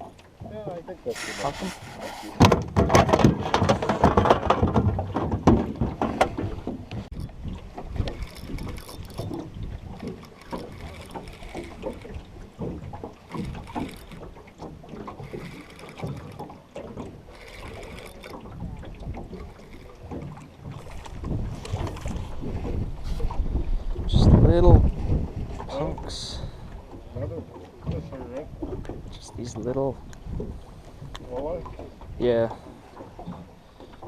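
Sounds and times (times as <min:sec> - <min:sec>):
knocks and clatter of gear: 0:02.4 - 0:22.8.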